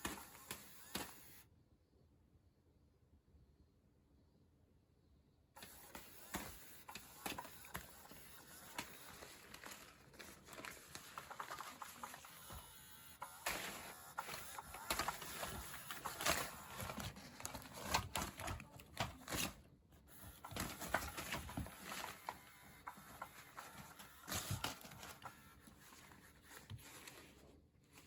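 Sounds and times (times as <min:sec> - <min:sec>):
kittens playing with toys: 0:05.6 - 0:28.0.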